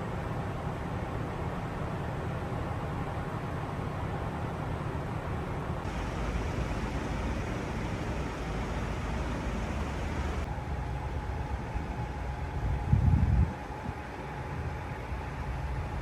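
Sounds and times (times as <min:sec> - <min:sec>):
road hiss: 0:05.6 - 0:16.0
vehicle engine rumble: 0:05.7 - 0:12.1.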